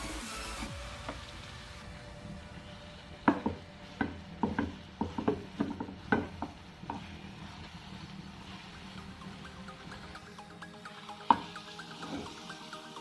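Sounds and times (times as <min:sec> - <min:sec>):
spatula scraping a pan: 0:03.2 - 0:10.2, 0:11.3 - 0:12.6.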